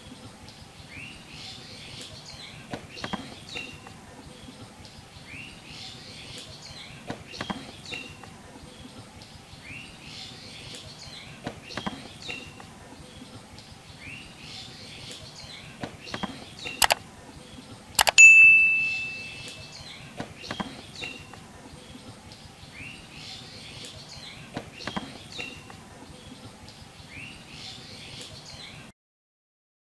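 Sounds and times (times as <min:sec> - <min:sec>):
small birds chirping: 0:00.0 - 0:28.9
sharp clicks: 0:16.8 - 0:17.0, 0:18.0 - 0:18.2
metallic ding: 0:18.0 - 0:19.6.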